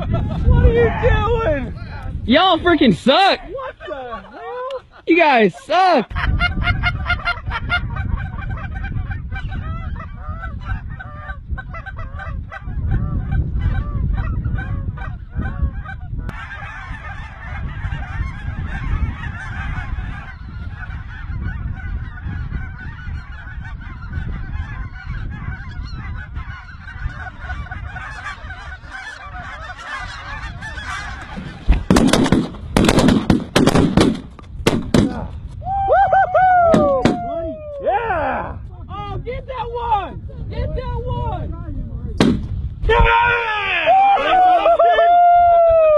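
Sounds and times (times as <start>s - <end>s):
geese honking: 5.1s - 32.4s
shotgun fire: 31.9s - 35.2s, 42.2s - 42.6s.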